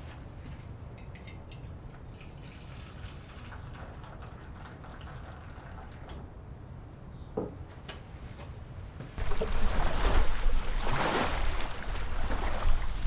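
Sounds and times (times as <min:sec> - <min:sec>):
strong wind buffeting microphone: 0:09.2 - 0:13.0.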